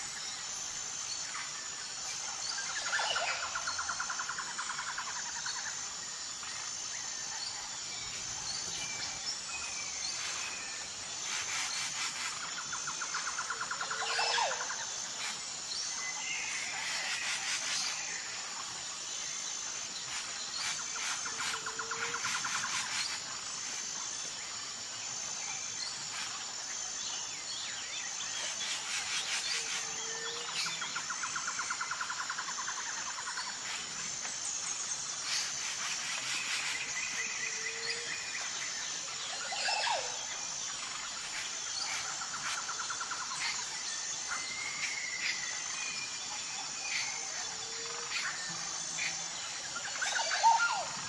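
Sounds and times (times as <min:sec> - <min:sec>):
pulsing insect drone: 0:00.0 - 0:51.0.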